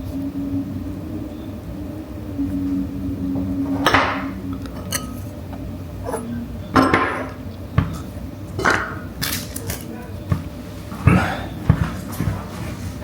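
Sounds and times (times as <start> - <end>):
tableware knocking and scraping: 3.7 - 5.4, 6.0 - 9.8
dishes clattering: 3.7 - 13.0.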